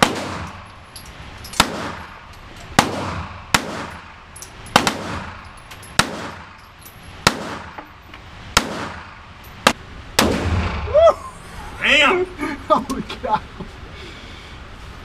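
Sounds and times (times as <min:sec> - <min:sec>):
gunshots with ring-out: 0:00.0 - 0:00.7, 0:01.6 - 0:02.2, 0:02.8 - 0:04.2, 0:04.8 - 0:05.4, 0:06.0 - 0:06.6, 0:07.2 - 0:07.8, 0:08.6 - 0:09.2, 0:10.2 - 0:10.9.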